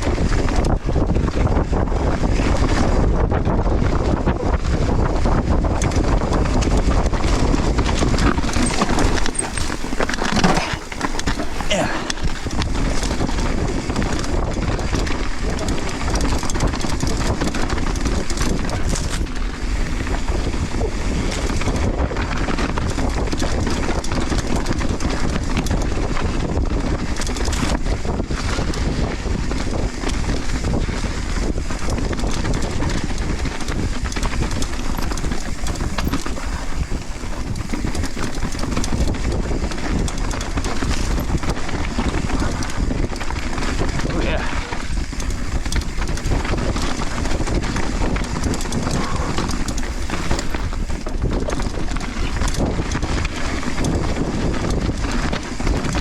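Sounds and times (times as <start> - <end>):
bike tyres on loose dirt: 0.0 - 56.0
wind buffeting microphone: 0.0 - 56.0
bike knocking over bumps: 6.6 - 21.9, 32.0 - 44.1, 44.7 - 54.1.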